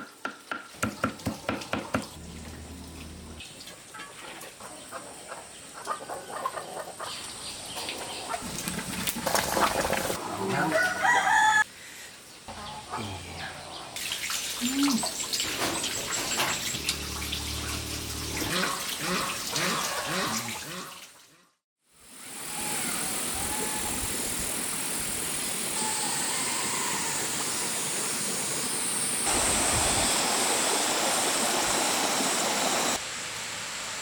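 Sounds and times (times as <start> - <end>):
chickens clucking: 2.2 - 11.0, 15.0 - 20.6
rooster crowing: 10.5 - 11.7, 22.5 - 24.1, 25.8 - 27.5.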